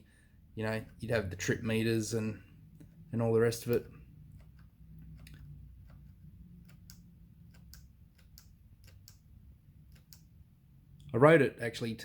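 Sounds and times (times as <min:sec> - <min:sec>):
low steady hum: 0:00.0 - 0:12.0
switch buttons clicking faintly: 0:03.6 - 0:10.3.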